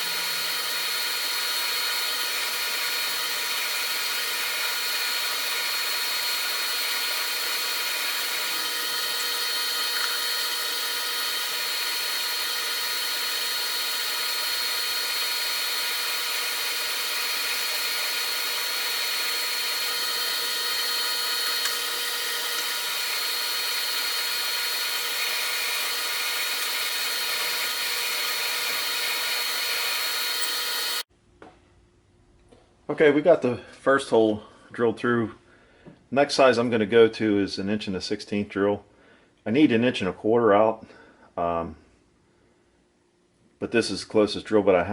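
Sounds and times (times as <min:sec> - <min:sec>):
drill bit cutting steel: 0:00.0 - 0:31.1
metal lathe whine: 0:00.0 - 0:31.1.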